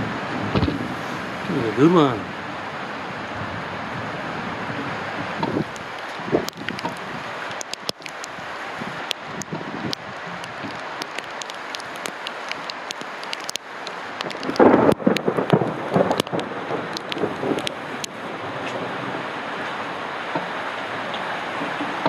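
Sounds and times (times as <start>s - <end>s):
thunder crack and rumble: 0.0s - 2.3s, 14.2s - 19.3s
heavy rain: 0.0s - 22.0s.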